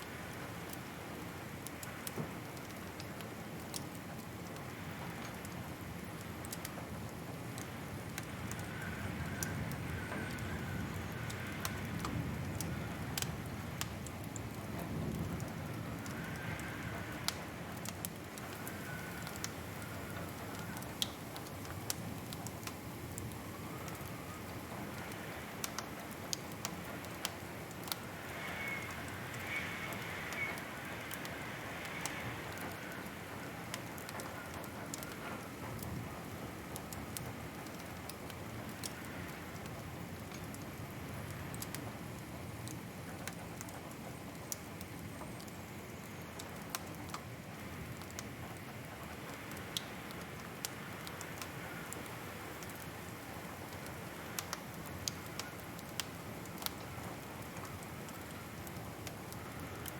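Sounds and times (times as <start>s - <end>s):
low rumble of burning: 0.0s - 59.9s
wood fire crackling and popping: 0.1s - 59.9s
faint wavering whistle: 28.4s - 30.6s.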